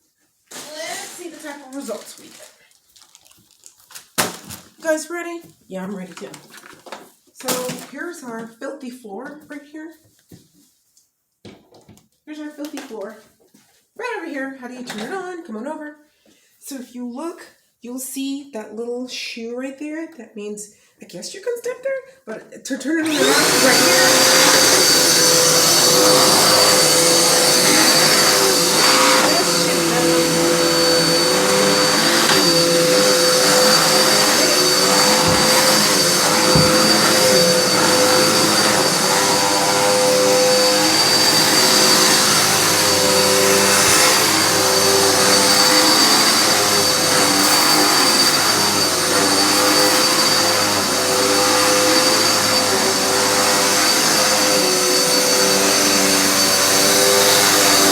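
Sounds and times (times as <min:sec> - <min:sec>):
vacuum cleaner running: 0:23.0 - 0:57.9.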